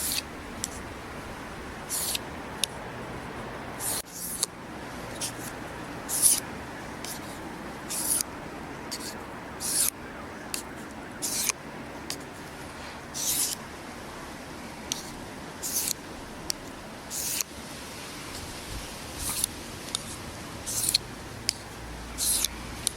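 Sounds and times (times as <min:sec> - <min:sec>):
knife scraping on whetstone: 0:00.0 - 0:00.8, 0:01.9 - 0:02.2, 0:03.8 - 0:04.5, 0:06.1 - 0:06.4, 0:07.0 - 0:08.3, 0:08.9 - 0:09.9, 0:11.2 - 0:11.6, 0:13.1 - 0:13.6, 0:14.9 - 0:16.0, 0:17.1 - 0:17.5, 0:19.2 - 0:21.0, 0:22.2 - 0:22.6.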